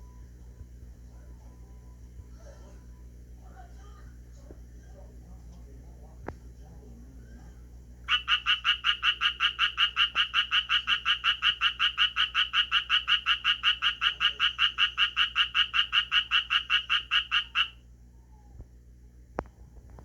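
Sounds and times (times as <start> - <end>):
frog croaking rapidly: 8.1 - 17.8.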